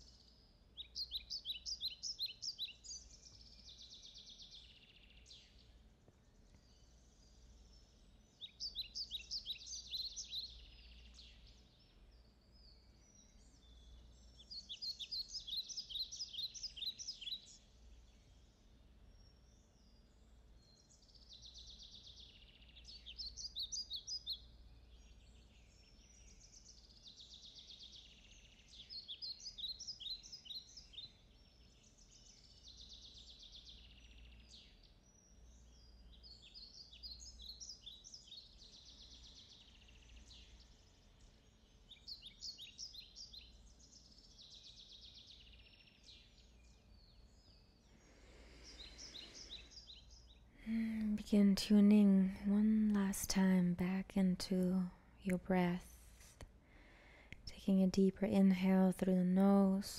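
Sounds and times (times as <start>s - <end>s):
faint birds chirping: 0.0s - 59.9s
low steady hum: 46.4s - 59.9s.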